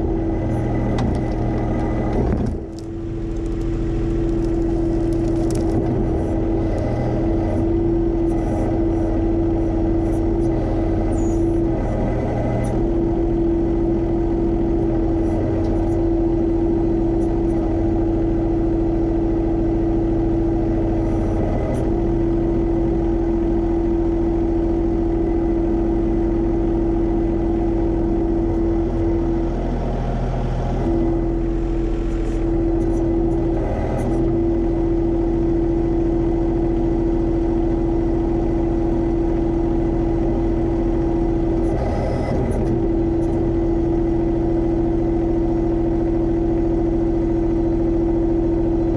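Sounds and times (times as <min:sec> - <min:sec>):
tractor diesel engine running: 0:00.0 - 0:48.9
steady whine: 0:25.2 - 0:34.6.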